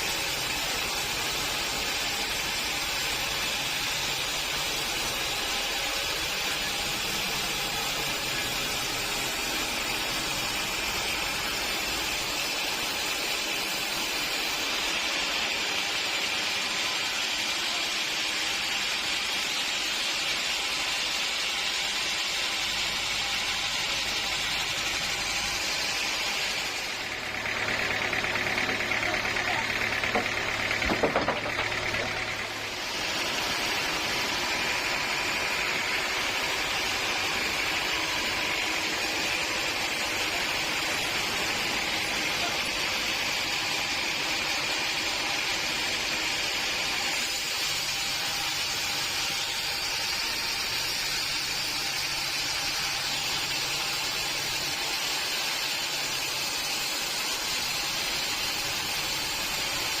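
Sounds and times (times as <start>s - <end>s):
sawmill machinery running: 0.0s - 60.0s
clatter of knocks: 30.1s - 32.2s.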